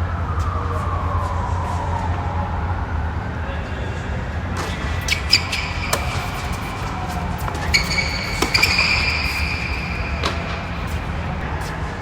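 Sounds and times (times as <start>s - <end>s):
tennis balls struck and bouncing: 4.5s - 12.0s.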